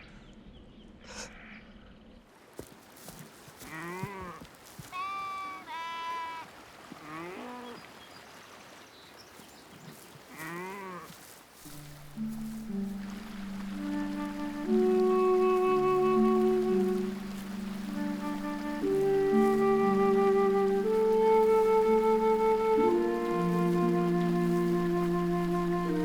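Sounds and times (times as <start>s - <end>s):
sheep bleating: 3.7s - 7.7s
soft music: 11.6s - 26.0s.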